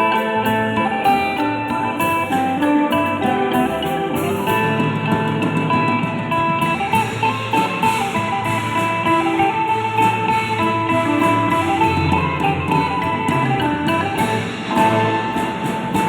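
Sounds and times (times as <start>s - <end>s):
light percussion beat: 0.0s - 16.0s
plucked string folk tune: 0.0s - 16.0s.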